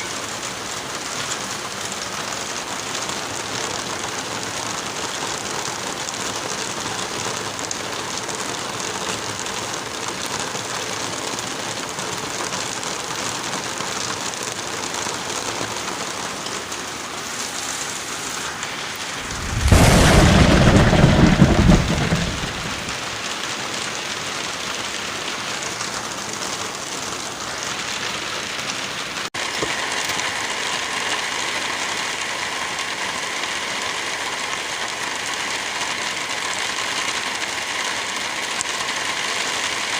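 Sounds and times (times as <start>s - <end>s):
light rain falling: 0.0s - 39.9s
wind through trees: 14.6s - 26.2s
loud low rumble: 19.2s - 23.0s.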